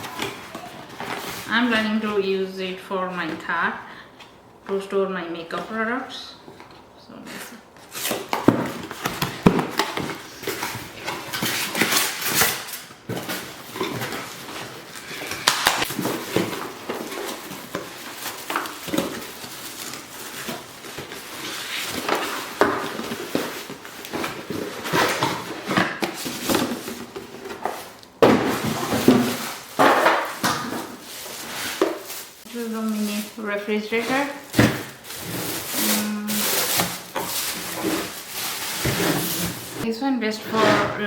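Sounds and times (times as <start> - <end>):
packaging rustling: 7.8 - 39.8.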